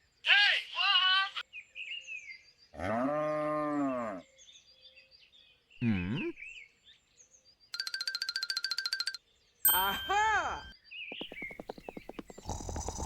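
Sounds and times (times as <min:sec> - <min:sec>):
faint bird chirps: 0:11.0 - 0:13.0.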